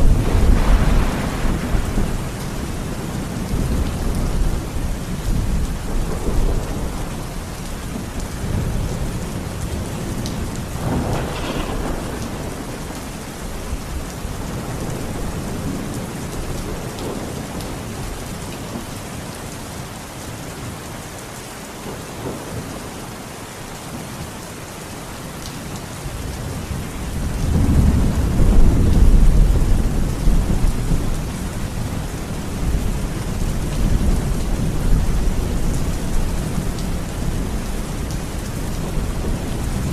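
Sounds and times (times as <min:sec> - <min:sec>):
rolling thunder: 0:00.0 - 0:18.2, 0:26.2 - 0:39.9
steady rain: 0:00.0 - 0:39.9.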